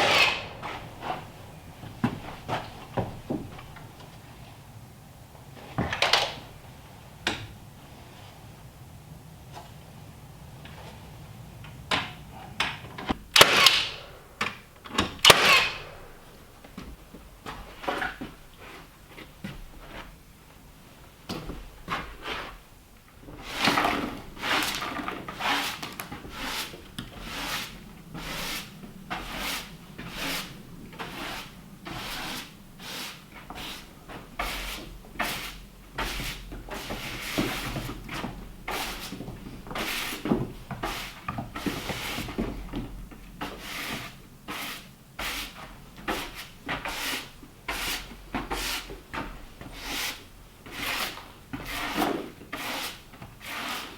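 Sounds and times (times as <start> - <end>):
hand tool rasping on wood: 23.4 - 42.4, 43.4 - 48.9, 49.6 - 53.9.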